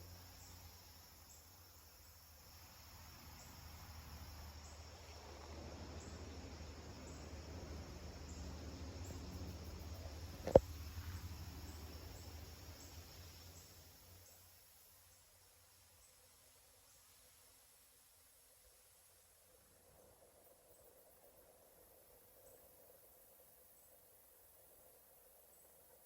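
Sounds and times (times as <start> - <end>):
steady low hum: 0.0 - 14.6
crickets chirping: 0.0 - 26.0.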